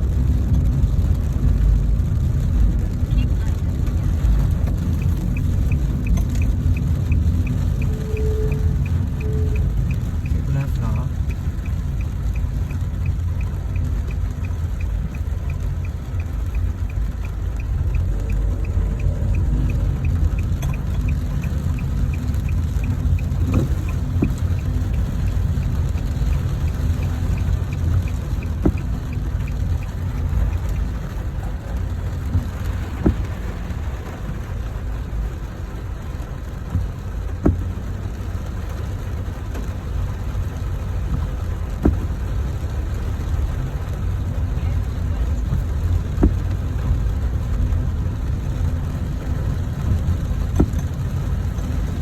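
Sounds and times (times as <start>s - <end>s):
traffic rumble: 0.0s - 52.0s
fast even ticking: 3.1s - 33.5s.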